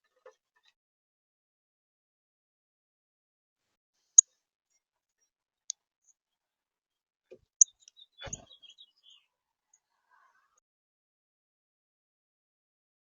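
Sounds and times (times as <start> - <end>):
high bird chirps: 7.6 - 9.3.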